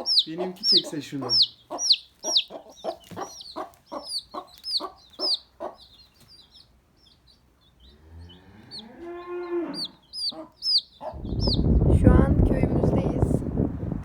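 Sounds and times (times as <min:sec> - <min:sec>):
high falling peeps: 0:00.0 - 0:06.5, 0:09.7 - 0:12.2
chickens clucking: 0:00.0 - 0:11.8.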